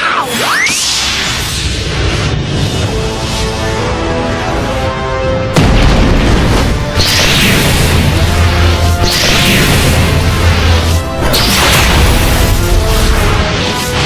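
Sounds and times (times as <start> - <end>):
dramatic background music: 0.2 - 14.0
loud crash: 5.5 - 13.5
heavy booms and impacts: 5.5 - 13.6.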